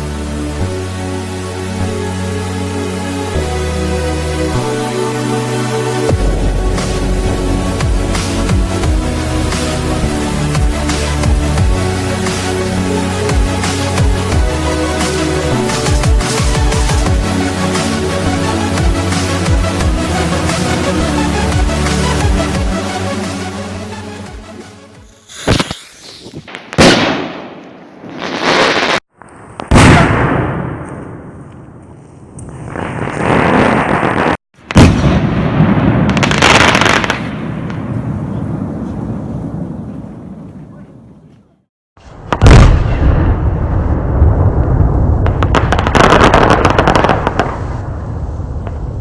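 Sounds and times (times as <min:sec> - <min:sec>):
firework bangs: 0:25.0 - 0:29.0, 0:32.4 - 0:40.5, 0:42.3 - 0:49.0
firework crackling: 0:25.0 - 0:29.0, 0:32.4 - 0:37.6, 0:45.2 - 0:49.0
firework shell bang: 0:25.1 - 0:27.7.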